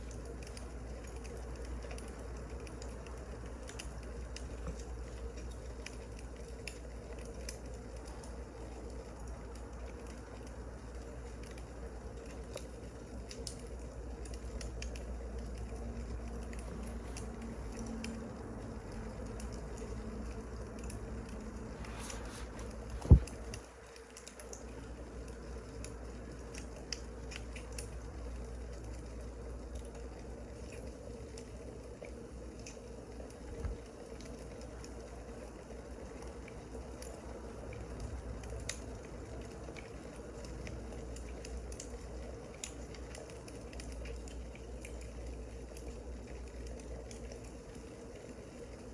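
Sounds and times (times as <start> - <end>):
wood fire crackling: 0.0 - 48.9
low hum: 13.0 - 31.8.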